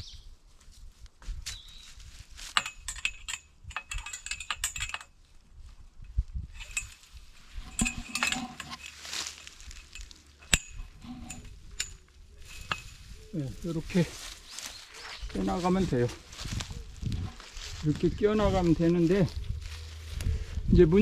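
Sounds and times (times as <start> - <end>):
wire mesh clinking against pipe: 2.4 - 5.2, 6.0 - 14.6.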